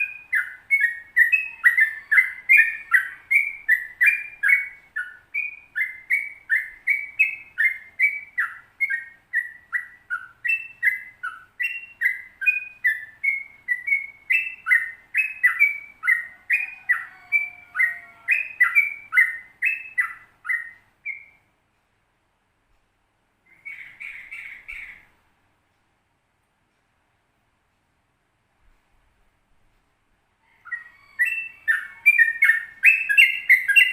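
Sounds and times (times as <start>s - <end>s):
bird singing whistled notes: 0.0s - 21.5s, 23.5s - 25.1s, 30.6s - 33.9s.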